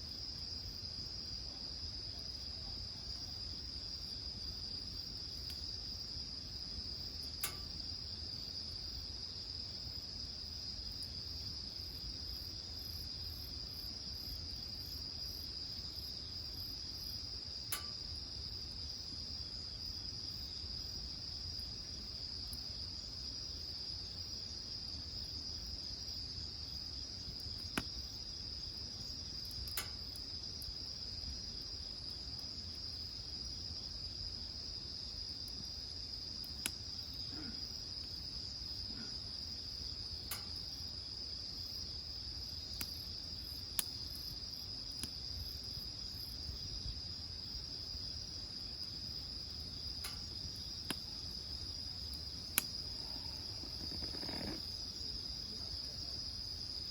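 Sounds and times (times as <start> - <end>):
insects trilling: 1.5 - 56.9
burning wood popping: 28.9 - 30.8, 48.9 - 55.2.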